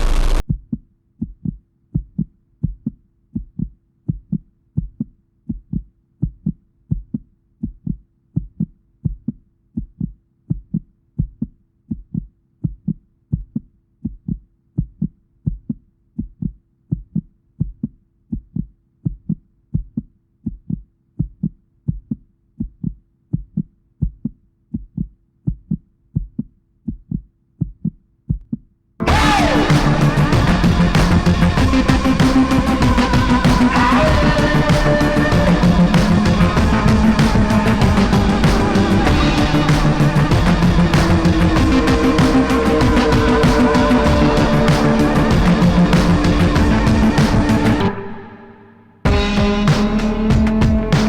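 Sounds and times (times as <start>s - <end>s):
low dull heartbeat-like thumps: 0.4s - 47.8s.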